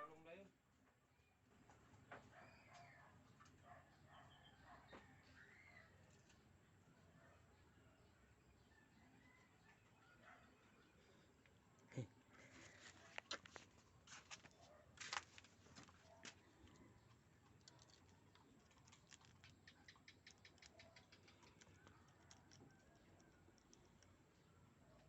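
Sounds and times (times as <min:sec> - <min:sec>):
faint clicks and crackles: 0:12.5 - 0:25.0.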